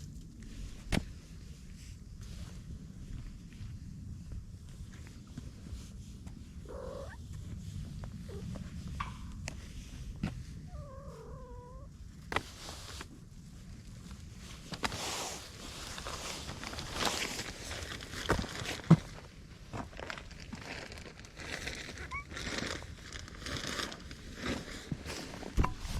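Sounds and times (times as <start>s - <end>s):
cat purring: 6.4s - 9.0s, 10.4s - 12.0s
cat meowing: 6.6s - 7.2s, 10.7s - 11.9s, 22.0s - 22.3s.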